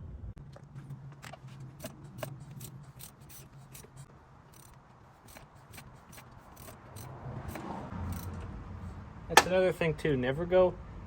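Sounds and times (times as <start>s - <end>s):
ratchet wrench clicking: 1.7s - 8.4s.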